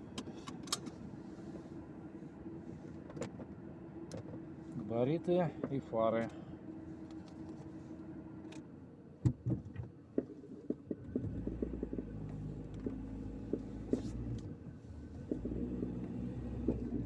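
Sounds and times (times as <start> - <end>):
car engine idling and droning: 0.0 - 17.0.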